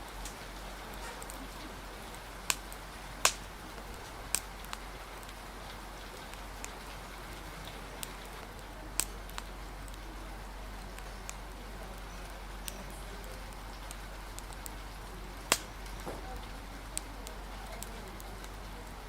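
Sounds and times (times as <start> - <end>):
rain hiss: 0.0 - 19.0
wood fire popping: 0.0 - 19.0.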